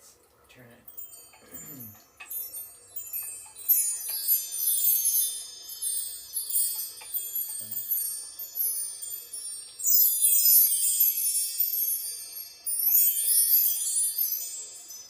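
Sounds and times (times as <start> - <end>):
metal chimes ringing: 0.6 - 15.0.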